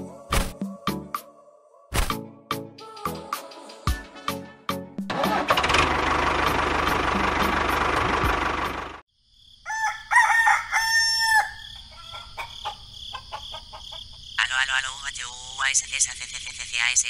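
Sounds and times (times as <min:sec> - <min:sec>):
motor running: 0:05.1 - 0:09.0
rooster crowing: 0:09.6 - 0:14.0.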